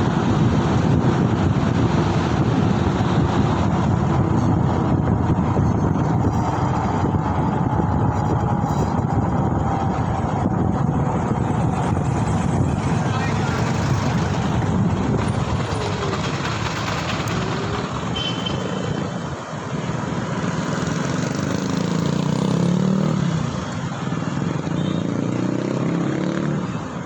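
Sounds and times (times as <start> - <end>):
wind rumble on microphone: 0.0 - 24.8
road and traffic noise: 0.0 - 27.0.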